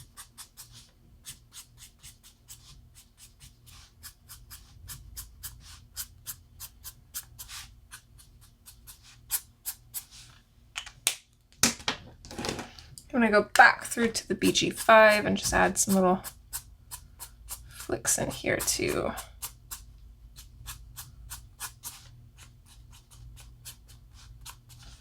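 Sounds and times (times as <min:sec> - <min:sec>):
marker strokes on paper: 0:00.0 - 0:10.4, 0:20.4 - 0:25.0.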